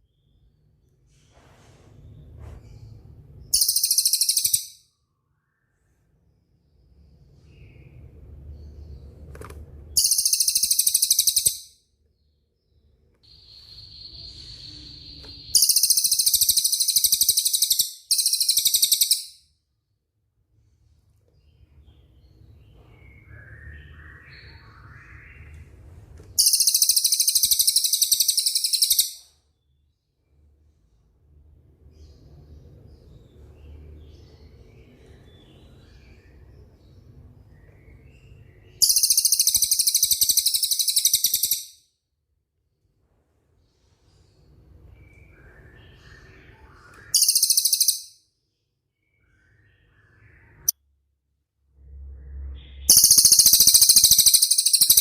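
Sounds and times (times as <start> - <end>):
faint bird chirping: 0.0 - 55.0
songbird whistle and rapid trill: 3.6 - 4.8, 10.0 - 11.7, 13.3 - 19.4, 26.4 - 29.3, 38.8 - 41.8, 45.5 - 48.2, 52.7 - 55.0
songbird high rapid trill: 52.9 - 55.0.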